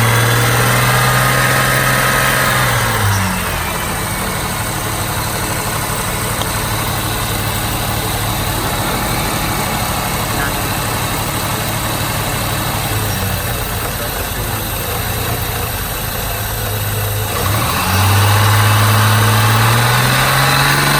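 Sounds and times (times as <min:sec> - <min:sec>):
car engine idling and revving: 0:00.0 - 0:20.9.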